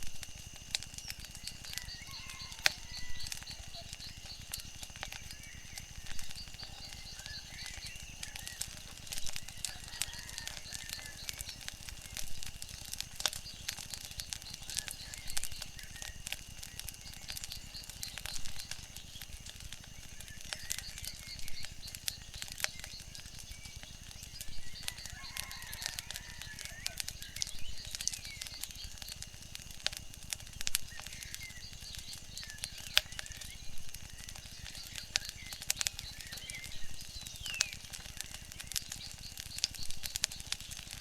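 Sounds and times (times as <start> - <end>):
wood fire crackling: 0.0 - 41.0
faint bird calls: 1.2 - 12.2, 24.1 - 29.1.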